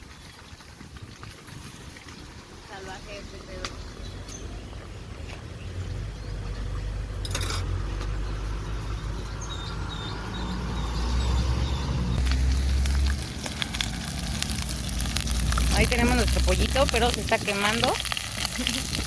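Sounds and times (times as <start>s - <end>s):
wind rumble on microphone: 0.0s - 2.6s
chicken frying in hot oil: 0.0s - 19.0s.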